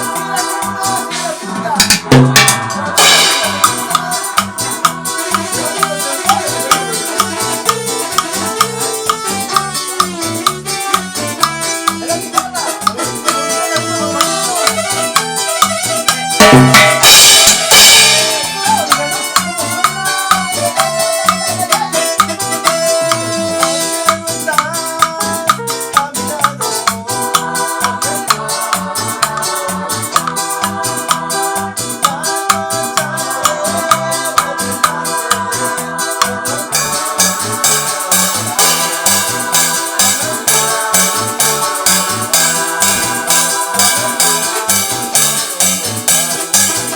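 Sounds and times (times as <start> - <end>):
cumbia music with percussion: 0.0 - 46.9
loud crash-like burst: 1.8 - 3.9.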